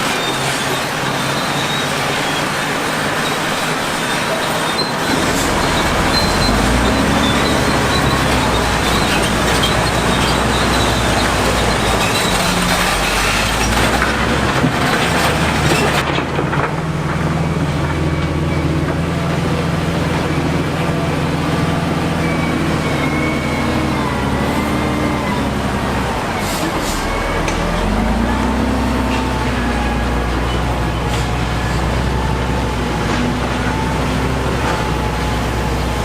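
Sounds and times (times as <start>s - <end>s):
construction machinery engine running: 0.0s - 36.0s
loud rough noise: 0.0s - 36.0s.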